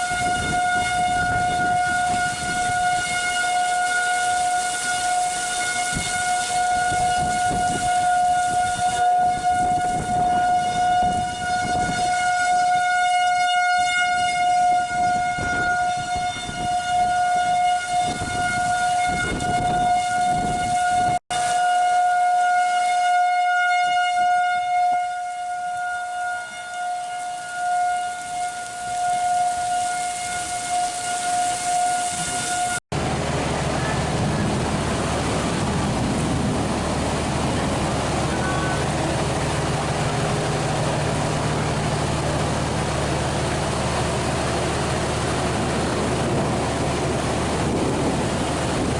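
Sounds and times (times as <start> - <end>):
wind gusts: 0.0 - 12.7, 14.2 - 21.7, 27.1 - 48.9
rain: 0.0 - 13.0, 25.4 - 48.9
steady siren tone: 0.0 - 48.9.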